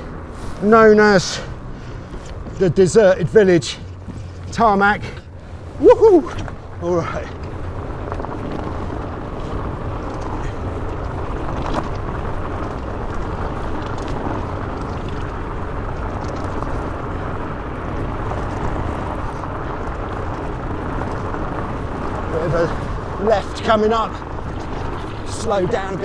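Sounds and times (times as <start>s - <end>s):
bike tyres rolling fast: 0.0s - 26.0s
wind on microphone: 0.0s - 26.0s.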